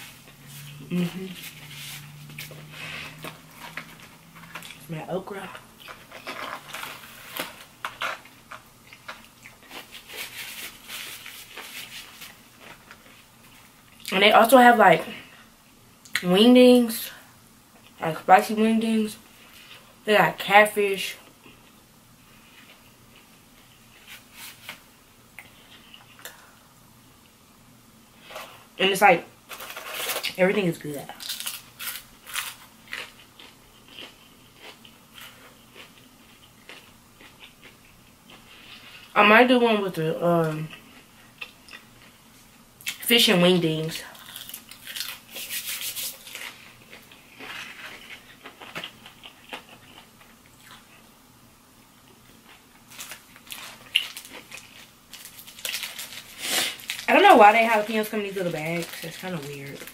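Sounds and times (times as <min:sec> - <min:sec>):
crunchy food chewing: 0:05.5 - 0:14.1, 0:31.1 - 0:39.1, 0:44.1 - 0:51.0, 0:52.0 - 0:57.1.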